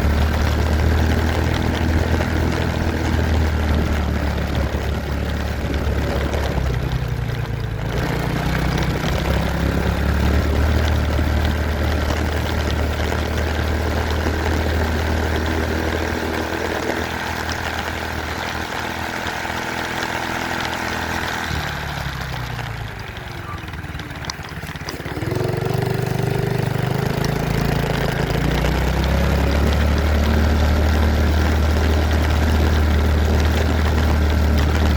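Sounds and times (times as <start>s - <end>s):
dirt bike engine revving: 24.1s - 34.9s.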